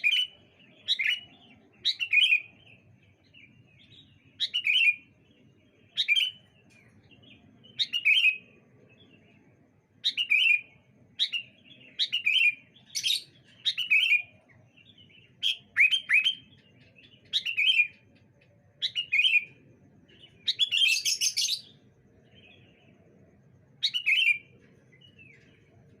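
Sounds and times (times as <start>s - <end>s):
loud harsh bird call: 0.0s - 2.8s, 4.0s - 5.2s, 10.0s - 14.5s, 15.3s - 16.6s
bulbuls chirping: 0.0s - 9.4s, 10.0s - 26.0s.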